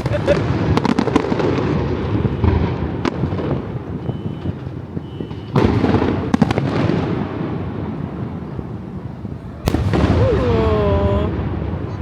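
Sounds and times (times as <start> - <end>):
fireworks exploding: 0.0 - 12.0.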